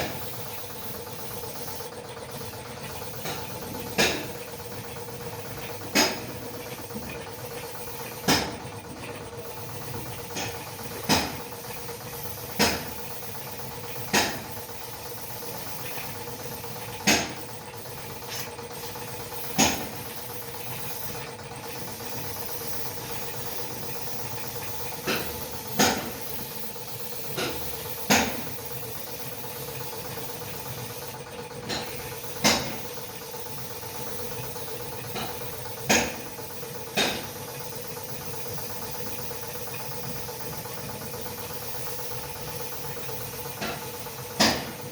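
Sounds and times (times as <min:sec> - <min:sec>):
steady machine hum: 0:00.0 - 0:44.9.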